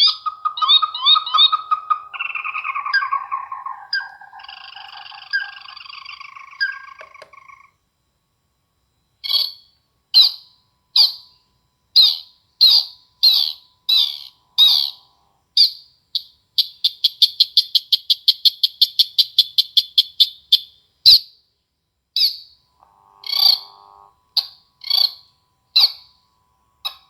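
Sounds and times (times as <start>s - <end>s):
recorded bird calls through speaker: 0.0s - 7.8s.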